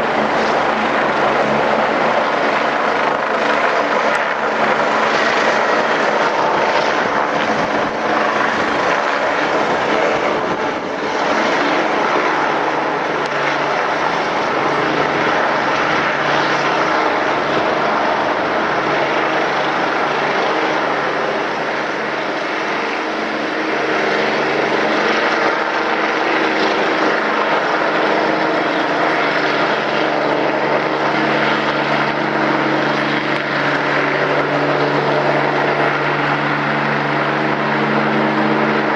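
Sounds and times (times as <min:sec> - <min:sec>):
helicopter rotor and turbine: 0:00.0 - 0:38.9.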